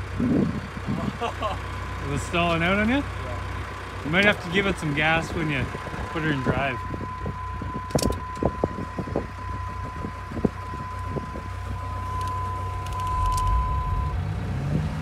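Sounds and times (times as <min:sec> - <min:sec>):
car engine idling: 0:00.0 - 0:15.0
steady high-pitched tone: 0:06.3 - 0:14.3.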